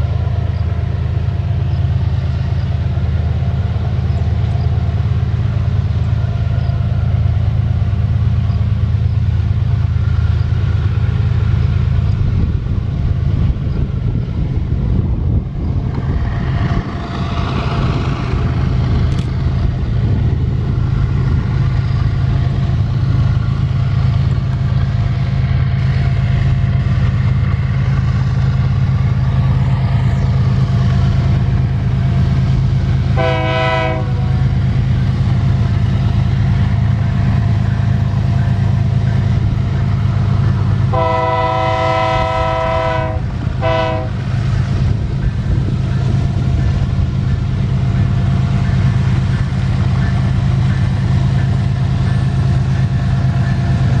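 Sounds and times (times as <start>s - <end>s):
diesel locomotive engine drone: 0.0s - 54.0s
train horn blast: 33.1s - 34.5s, 40.8s - 44.3s.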